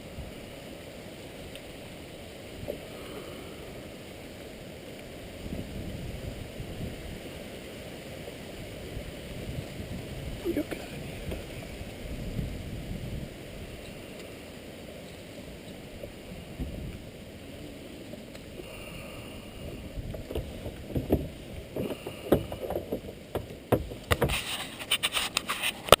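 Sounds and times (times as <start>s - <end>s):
low water wash: 0.0s - 26.0s
kayak knocks and splashes: 19.6s - 24.6s.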